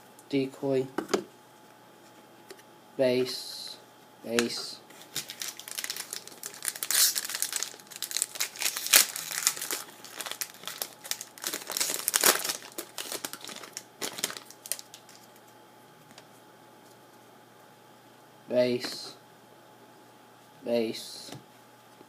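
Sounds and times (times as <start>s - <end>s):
foil wrapper crinkling: 4.9s - 15.5s.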